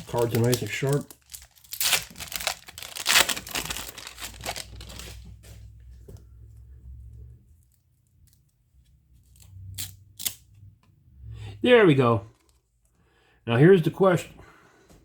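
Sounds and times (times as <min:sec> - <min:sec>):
wrapper crinkling and tearing: 0:00.0 - 0:05.4.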